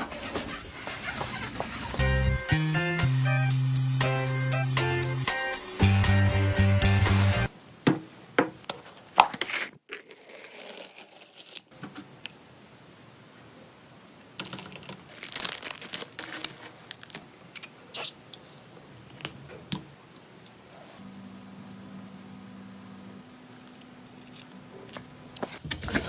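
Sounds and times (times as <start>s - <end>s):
rustling tearing scrapes: 0.0s - 2.0s, 9.4s - 11.7s, 15.1s - 17.2s.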